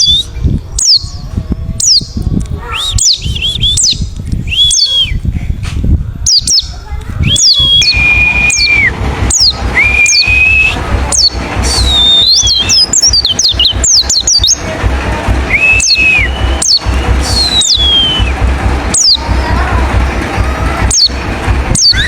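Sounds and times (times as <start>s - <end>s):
bird whistling: 0.0s - 1.2s, 1.8s - 5.2s, 6.3s - 14.6s, 15.5s - 19.3s, 20.8s - 22.0s
low rushing background: 7.1s - 22.0s.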